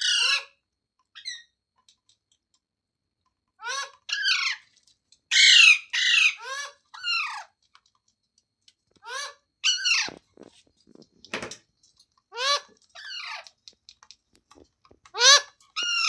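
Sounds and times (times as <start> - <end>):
parrot squawking: 0.0 - 0.6, 3.6 - 4.7, 5.3 - 7.5, 9.0 - 10.2, 12.3 - 13.5, 15.1 - 16.0.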